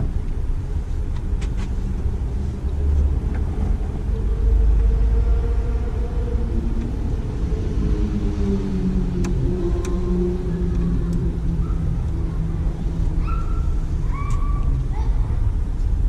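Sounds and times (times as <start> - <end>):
low rumble of machinery: 1.8 - 16.0.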